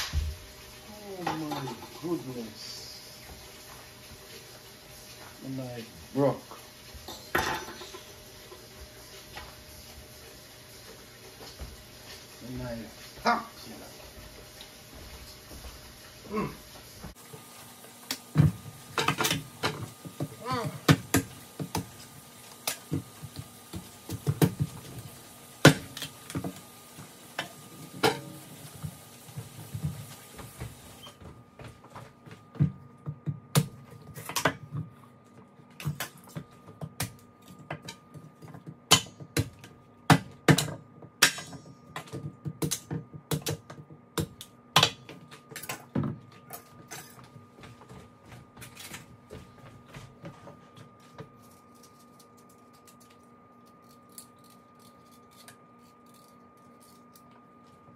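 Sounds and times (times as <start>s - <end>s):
knocks and clicks of food preparation: 18.0s - 22.0s, 22.6s - 51.4s.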